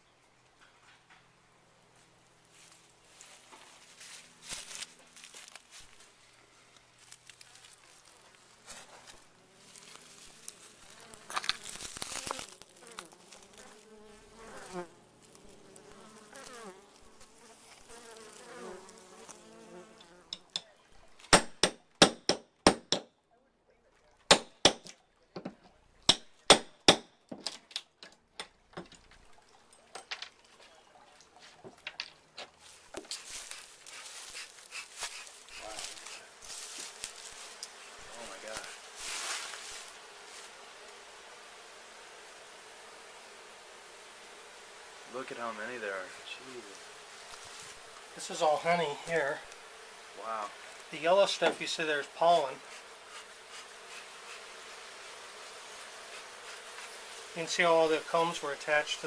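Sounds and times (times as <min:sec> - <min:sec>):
honeybees buzzing: 0:02.5 - 0:20.8, 0:33.0 - 0:59.0
loud sharp knocks: 0:21.3 - 0:23.1.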